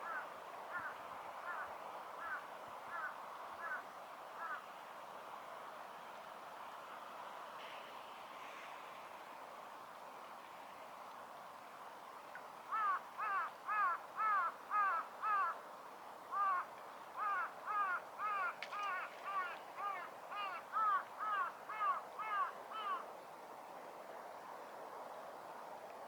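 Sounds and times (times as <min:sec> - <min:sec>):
crow cawing: 0:00.0 - 0:00.9, 0:02.2 - 0:03.8, 0:04.4 - 0:04.6, 0:12.7 - 0:15.6, 0:16.3 - 0:23.0.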